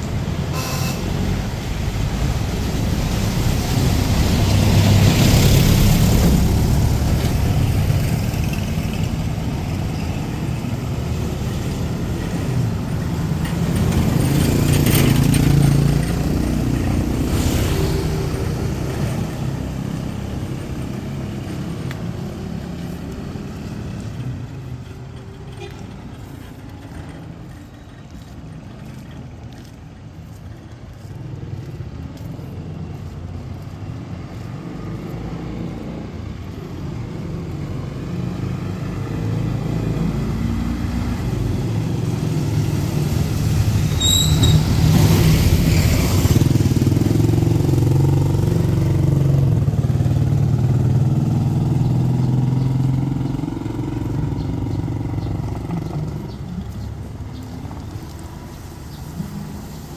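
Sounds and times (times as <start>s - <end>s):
tyres hissing on wet road: 0.0s - 27.6s, 29.7s - 59.9s
vehicle engine passing: 0.0s - 59.9s
brief high squeak: 43.9s - 45.1s.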